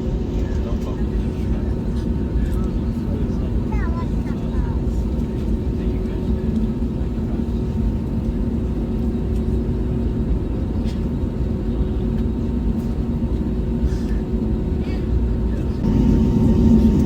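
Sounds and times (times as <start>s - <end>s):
engine rumble inside vehicle cabin: 14.1s - 17.0s
low hum: 15.8s - 17.0s.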